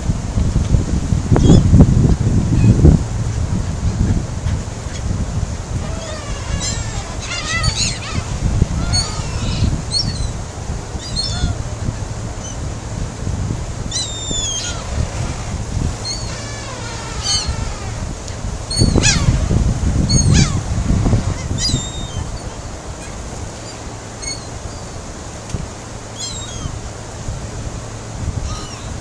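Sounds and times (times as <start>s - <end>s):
wind rumbling on microphone: 0.0s - 29.0s
seagulls crying: 5.7s - 12.6s, 13.8s - 18.1s, 18.7s - 19.4s, 20.1s - 20.7s, 21.3s - 25.0s, 26.1s - 26.8s, 28.4s - 29.0s.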